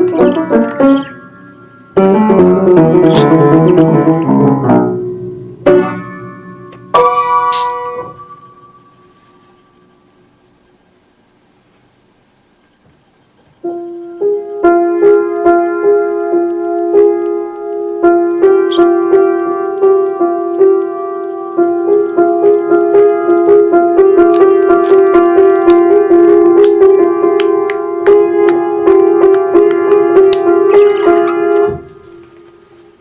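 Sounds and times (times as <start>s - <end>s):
piano notes: 0.0s - 10.6s, 12.7s - 33.0s.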